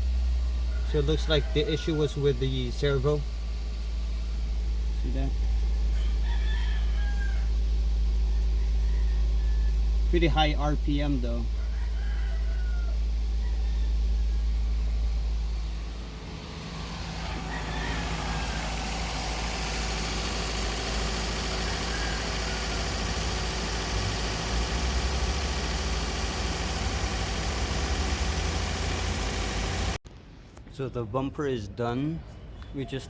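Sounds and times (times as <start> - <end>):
car engine idling high: 0.0 - 6.0, 12.9 - 30.0.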